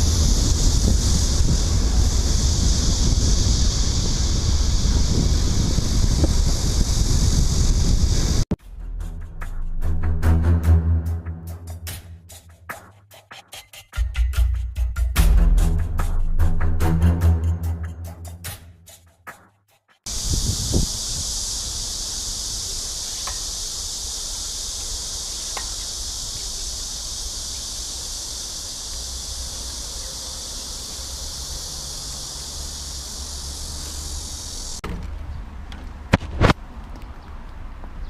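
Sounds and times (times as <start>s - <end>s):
cicadas buzzing: 0.0s - 8.5s, 20.1s - 37.4s.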